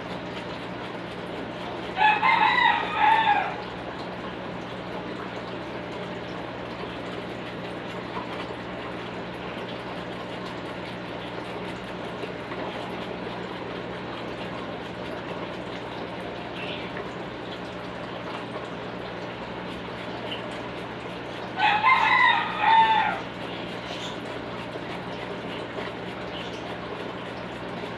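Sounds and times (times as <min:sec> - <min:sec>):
rooster crowing: 0:02.0 - 0:03.7, 0:21.6 - 0:23.4.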